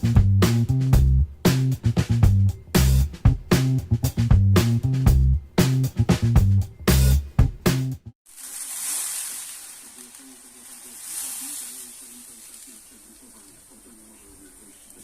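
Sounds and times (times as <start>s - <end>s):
drawn-out hisses: 8.4s - 15.0s
faint low murmur: 9.8s - 15.0s.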